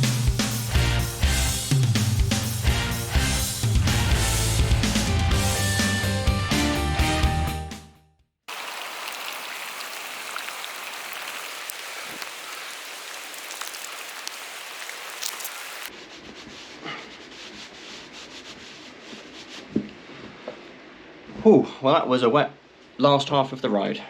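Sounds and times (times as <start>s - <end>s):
backing music: 0.0s - 7.7s
heavy rain hissing: 8.5s - 15.9s
water dripping: 8.5s - 15.9s.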